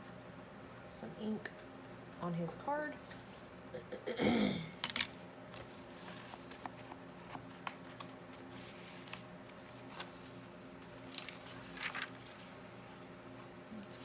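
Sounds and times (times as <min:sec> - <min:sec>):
paper rustling: 0:05.6 - 0:14.0.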